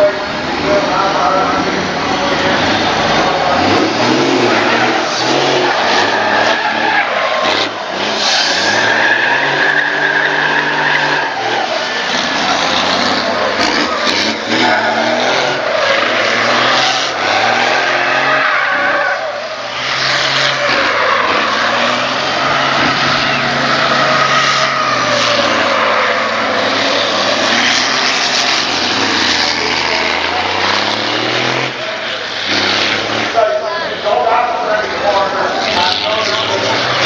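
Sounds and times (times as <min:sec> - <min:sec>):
racing truck diesel engines: 0:00.0 - 0:37.0.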